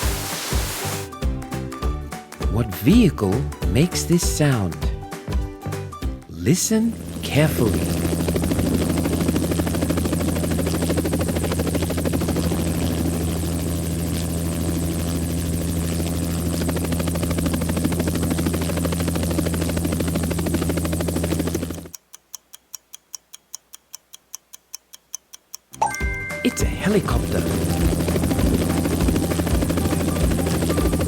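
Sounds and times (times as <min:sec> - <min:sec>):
helicopter rotor chopping: 0:06.5 - 0:21.9, 0:26.5 - 0:31.0
clock-like ticks: 0:21.6 - 0:26.1.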